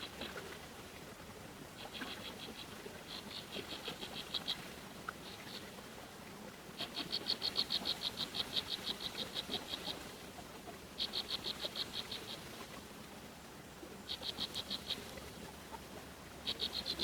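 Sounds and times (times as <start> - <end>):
animal pulsed trill call: 16.5 - 17.0.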